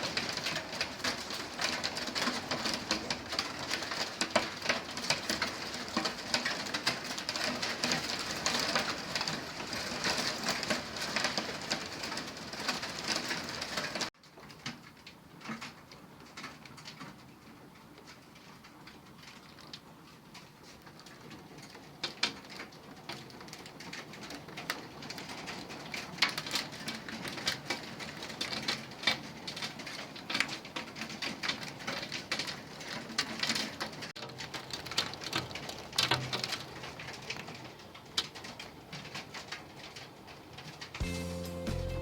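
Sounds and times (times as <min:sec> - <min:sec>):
rain patter: 0:00.0 - 0:42.0.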